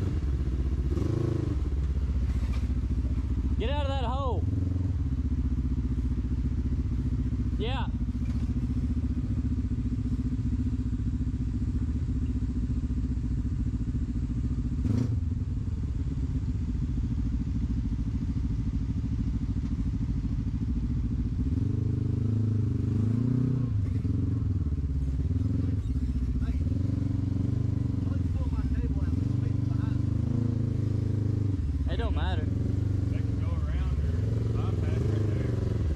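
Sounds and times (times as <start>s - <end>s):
vehicle engine revving under load: 0.0s - 5.8s, 14.3s - 15.5s, 20.9s - 35.9s.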